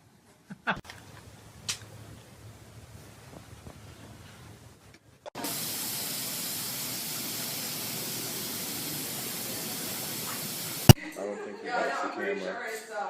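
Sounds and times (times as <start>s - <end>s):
loud steady hiss: 5.4s - 11.0s.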